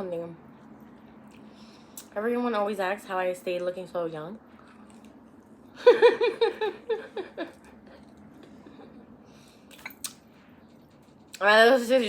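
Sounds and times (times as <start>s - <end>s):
woman laughing: 5.8s - 7.7s.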